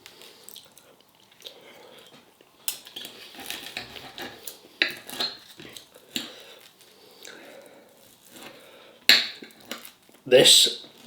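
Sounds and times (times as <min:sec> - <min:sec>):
cutlery scraping on plate: 0:02.7 - 0:06.4.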